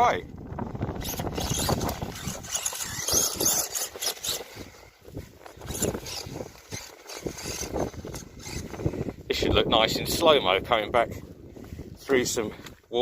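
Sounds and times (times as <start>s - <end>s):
electric motor whining: 0.9s - 4.7s, 5.4s - 9.1s
tyres churning through mud: 1.0s - 8.8s.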